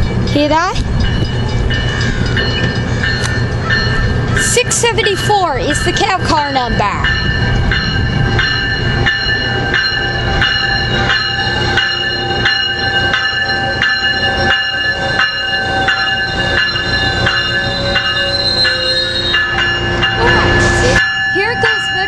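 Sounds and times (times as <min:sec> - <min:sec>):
train low rumble: 0:00.0 - 0:22.0
train wheels squealing: 0:08.2 - 0:21.8.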